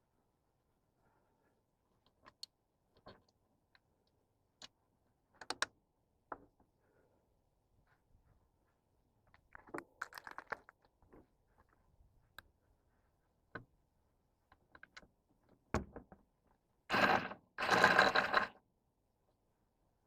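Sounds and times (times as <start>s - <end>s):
hardware clicks and ticks: 9.3s - 11.0s
raspy ratcheting: 16.9s - 18.5s.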